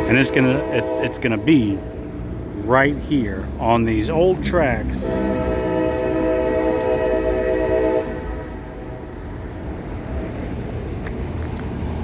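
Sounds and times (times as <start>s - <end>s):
locomotive air horn blast: 0.0s - 1.9s, 4.5s - 8.9s.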